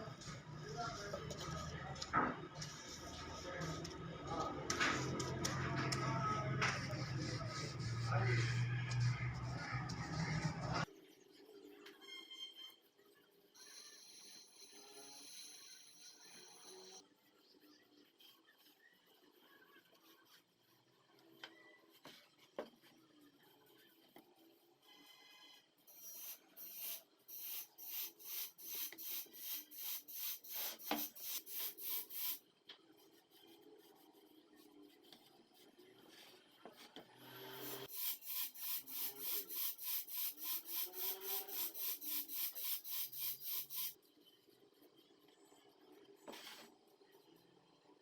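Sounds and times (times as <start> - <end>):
sanding wood by hand: 37.6 - 44.0.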